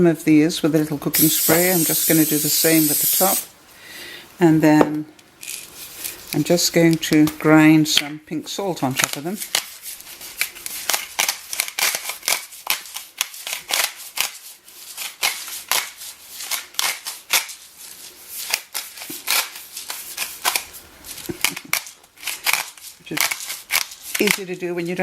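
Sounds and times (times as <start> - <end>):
salt grinder crunching crystals: 1.2 - 3.4, 9.1 - 24.9.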